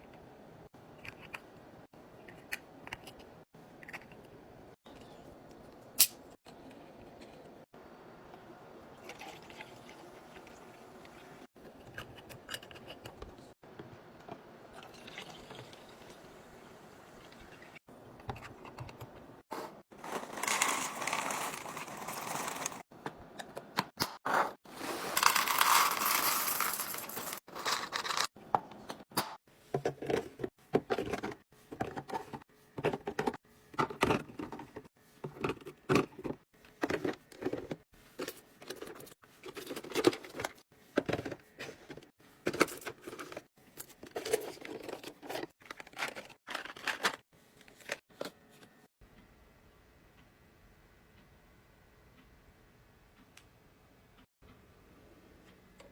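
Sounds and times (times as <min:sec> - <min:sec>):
packaged items tapping and clattering: 0:19.9 - 0:22.9, 0:24.7 - 0:28.4, 0:29.8 - 0:48.2
plastic packaging tearing and crinkling: 0:20.0 - 0:22.8.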